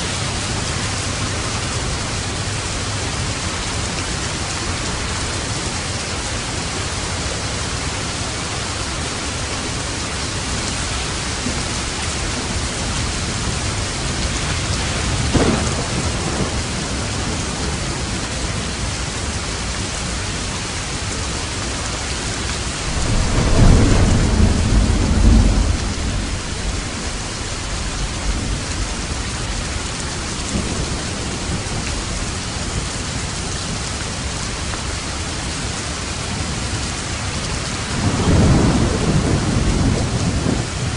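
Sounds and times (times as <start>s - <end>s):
low rolling thunder rumble: 0.0s - 21.1s, 22.1s - 40.9s
heavy rain: 0.0s - 40.9s
thunder clap: 14.0s - 17.9s, 22.7s - 29.6s, 37.8s - 40.9s.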